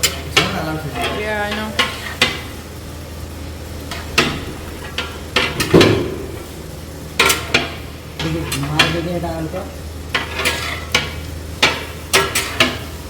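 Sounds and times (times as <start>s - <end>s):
metal ladle clanking on pot: 0.0s - 2.5s, 3.9s - 6.4s, 7.2s - 9.1s, 10.1s - 13.0s
steady low hum: 0.0s - 13.0s.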